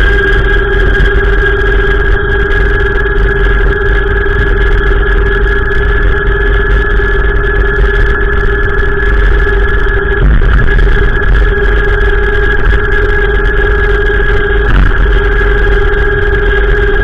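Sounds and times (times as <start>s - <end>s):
steady high whine: 0.0s - 17.0s
wind buffeting microphone: 7.4s - 17.0s.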